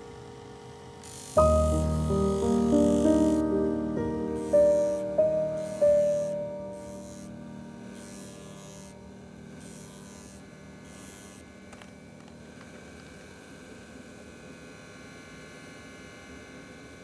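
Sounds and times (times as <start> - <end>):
high hiss of grinding strokes: 1.0 - 11.9
piano note: 1.4 - 9.7.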